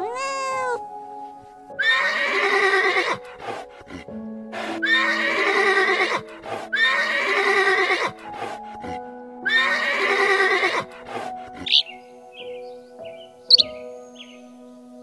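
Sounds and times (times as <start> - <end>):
soft piano music: 0.0 - 15.0
horse whinnying: 1.8 - 3.6, 4.6 - 8.2, 9.4 - 10.9, 11.6 - 11.9.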